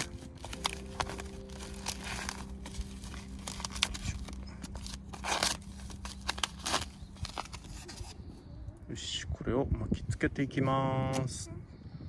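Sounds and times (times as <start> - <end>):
plastic packaging crinkling and tearing: 0.0 - 8.4.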